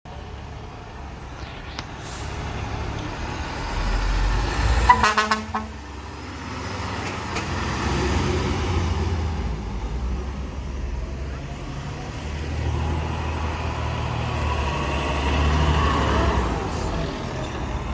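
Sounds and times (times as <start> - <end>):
fire truck engine pulling away: 0.1 - 17.9
pulsing horn blast: 4.5 - 6.0.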